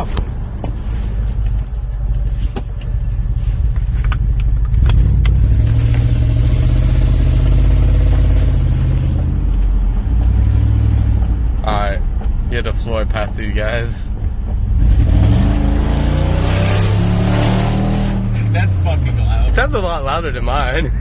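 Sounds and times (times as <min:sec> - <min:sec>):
loud engine exhaust: 0:04.7 - 0:09.3, 0:14.7 - 0:19.0.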